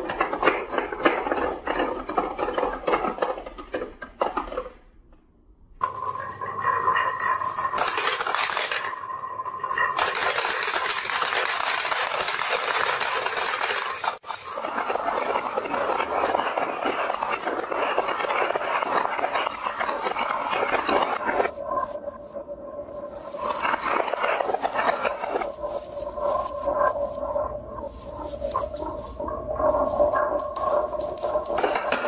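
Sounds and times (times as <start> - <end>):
marbles clattering down a track: 5.8 - 21.6, 29.6 - 32.0.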